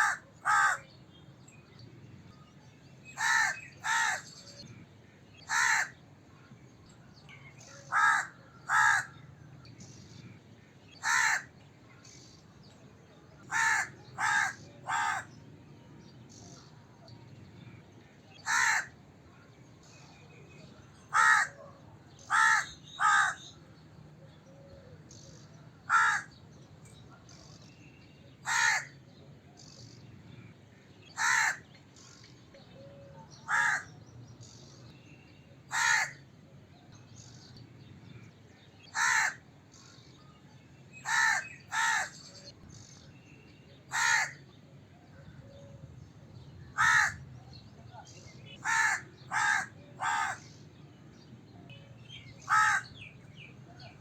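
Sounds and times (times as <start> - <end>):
crow cawing: 0.0 - 0.8, 3.2 - 4.3, 5.5 - 6.0, 7.9 - 9.2, 11.0 - 11.5, 13.5 - 15.3, 18.4 - 19.0, 21.1 - 21.6, 22.3 - 23.5, 25.9 - 26.4, 28.4 - 29.0, 31.2 - 31.6, 33.4 - 33.9, 35.7 - 36.2, 38.9 - 39.4, 41.0 - 42.2, 43.9 - 44.4, 46.8 - 47.2, 48.6 - 50.4, 52.4 - 53.0.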